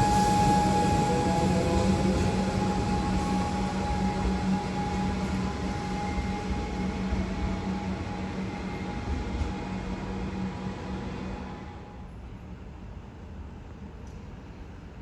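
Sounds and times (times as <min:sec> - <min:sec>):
high whine: 0:00.0 - 0:08.3
passenger train rumbling past: 0:00.0 - 0:13.0.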